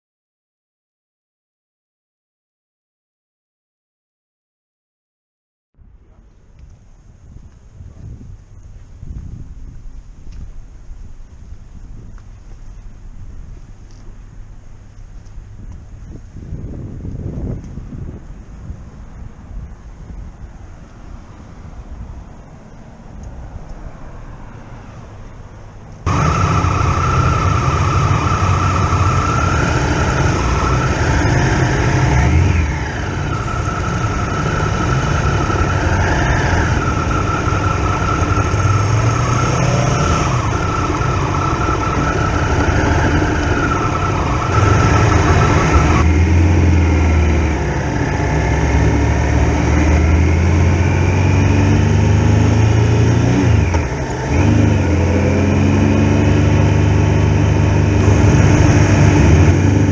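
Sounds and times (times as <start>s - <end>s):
motorcycle engine running: 26.1s - 52.6s, 53.4s - 59.9s.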